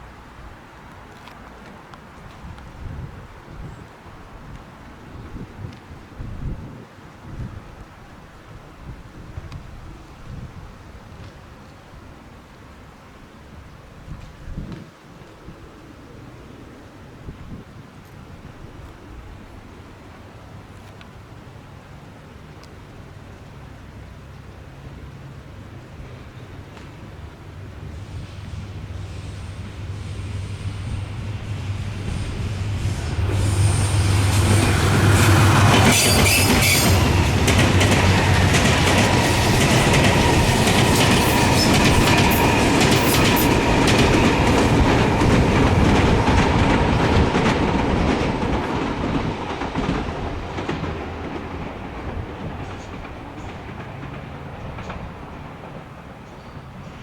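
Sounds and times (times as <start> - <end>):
train wheels clattering on rails: 26.0 - 57.0
metallic train whine: 26.1 - 54.2.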